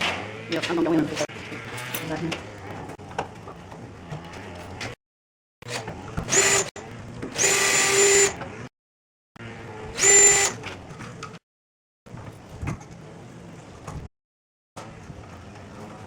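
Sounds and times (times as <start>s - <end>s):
power drill whining: 5.7s - 8.6s, 9.5s - 10.7s.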